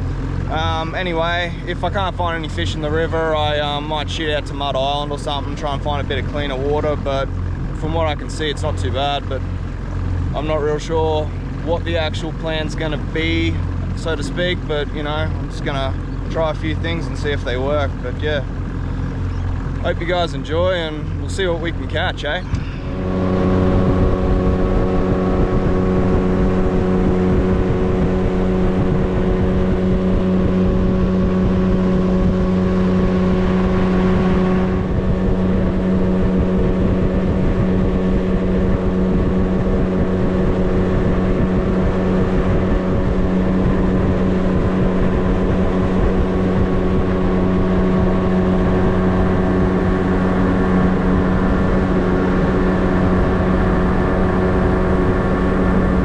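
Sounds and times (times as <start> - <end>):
outboard motor droning: 0.0 - 56.0
wind and water rushing: 11.3 - 56.0.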